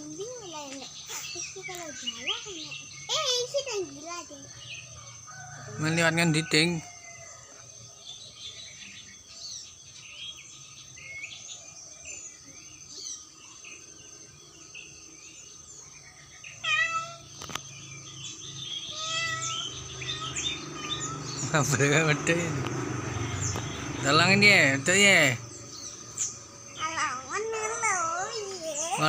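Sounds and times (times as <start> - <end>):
faint high chirping: 0.0 - 29.0
cat meowing: 16.6 - 17.4, 18.9 - 21.4.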